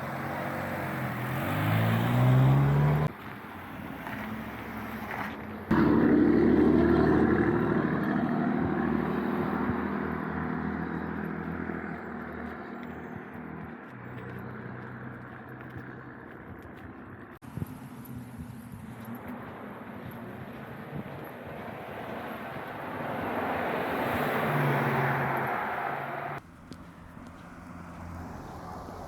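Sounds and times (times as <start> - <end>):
engine speeding up: 0.0 - 3.2, 5.7 - 29.0
vehicle starting abruptly: 5.7 - 12.0.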